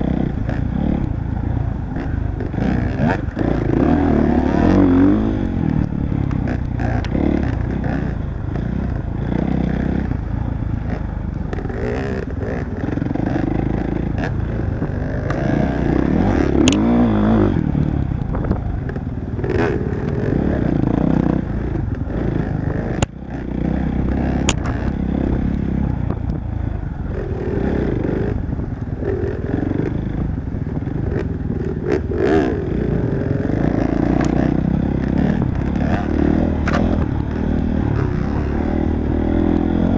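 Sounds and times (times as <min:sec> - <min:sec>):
motorcycle engine revving: 0:00.0 - 0:39.9
sharp clicks: 0:16.6 - 0:16.9, 0:24.4 - 0:26.4.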